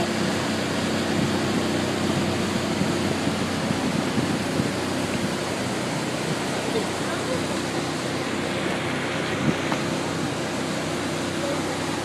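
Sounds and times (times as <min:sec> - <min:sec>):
motorboat engine at full throttle: 0:00.0 - 0:12.0
rushing water: 0:00.0 - 0:12.0
wind noise: 0:01.0 - 0:06.5, 0:09.2 - 0:10.0.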